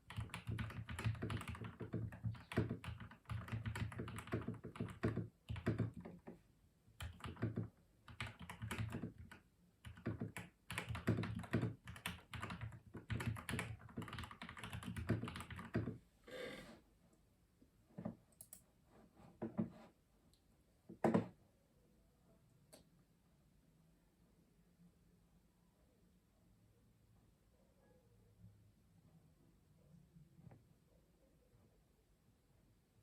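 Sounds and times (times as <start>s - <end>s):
mechanical keyboard typing: 0.0s - 6.2s, 7.0s - 16.0s.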